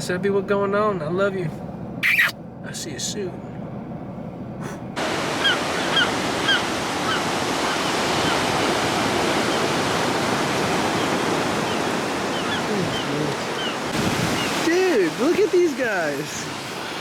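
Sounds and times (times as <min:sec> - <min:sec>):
short high bird calls: 0:02.0 - 0:02.4
ocean surf washing: 0:04.9 - 0:17.0.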